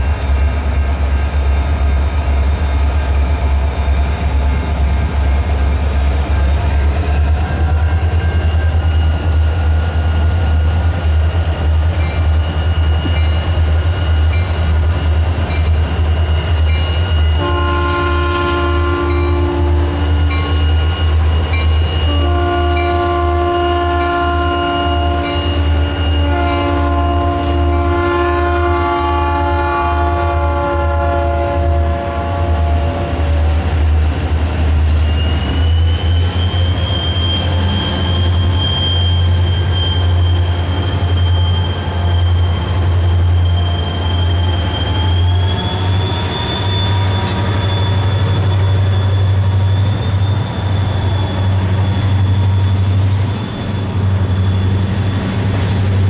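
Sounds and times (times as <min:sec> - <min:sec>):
freight train rumbling: 0:00.0 - 0:56.0
high wheel squeal: 0:00.2 - 0:17.4, 0:18.8 - 0:22.8, 0:24.5 - 0:28.0, 0:34.8 - 0:56.0
locomotive air horn chord: 0:17.4 - 0:20.2, 0:22.0 - 0:33.3.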